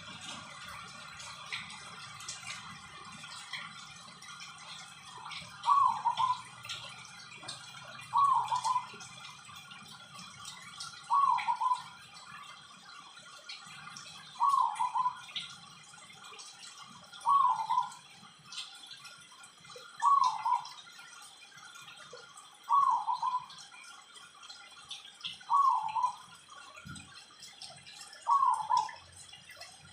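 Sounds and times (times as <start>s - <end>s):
dove cooing: 5.6s - 6.5s, 8.1s - 9.0s, 11.1s - 11.9s, 14.4s - 15.3s, 17.2s - 18.0s, 20.0s - 20.8s, 22.7s - 23.5s, 25.5s - 26.3s, 28.3s - 29.0s.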